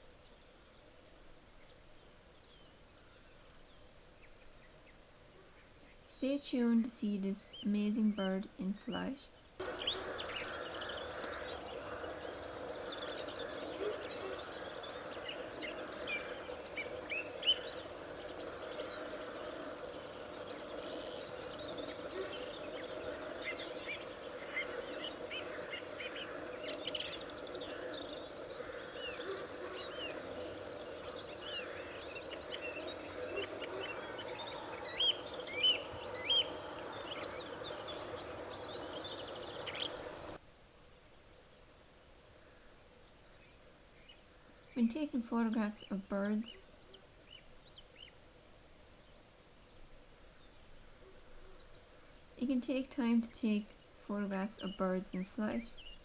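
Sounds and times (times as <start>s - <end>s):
songbirds chirping and twittering: 0.0s - 40.4s, 42.4s - 56.0s.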